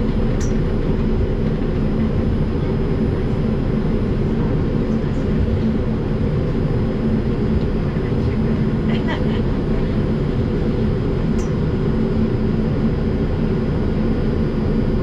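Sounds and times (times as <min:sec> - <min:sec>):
faint hum: 0:00.0 - 0:15.0
subway car rumble: 0:00.0 - 0:15.0.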